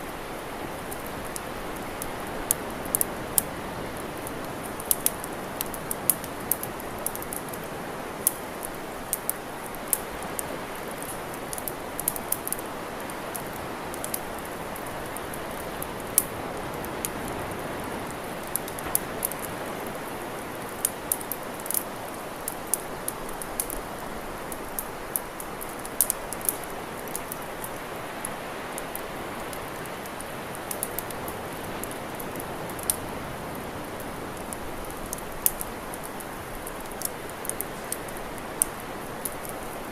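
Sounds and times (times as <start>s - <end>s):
steady rushing hiss: 0.0s - 39.9s
campfire crackling and popping: 0.1s - 39.9s.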